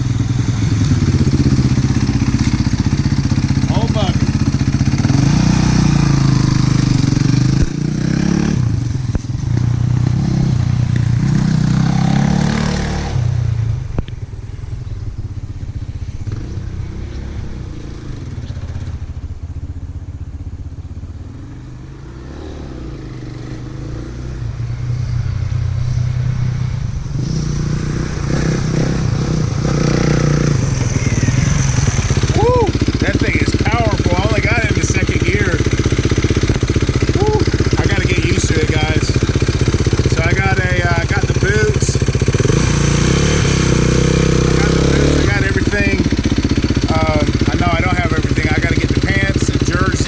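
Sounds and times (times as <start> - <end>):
dirt bike engine running: 0.0 - 50.0.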